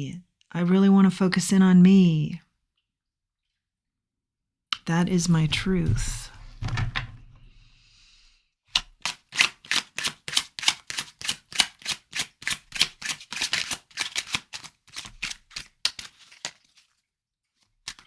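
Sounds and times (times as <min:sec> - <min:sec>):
cards being shuffled: 0:08.8 - 0:17.0.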